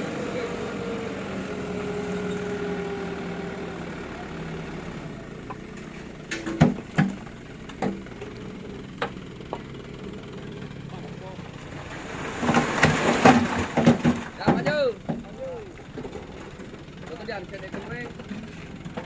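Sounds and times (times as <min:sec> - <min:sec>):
vehicle engine running at low revs: 0:00.0 - 0:19.0
sharp knocks and clanks: 0:05.5 - 0:08.4, 0:12.4 - 0:16.8.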